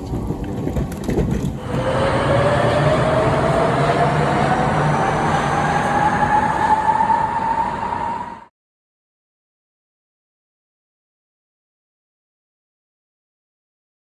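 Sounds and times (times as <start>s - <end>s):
train running rumble: 0.0s - 8.5s
electric train motor whine: 1.6s - 8.5s.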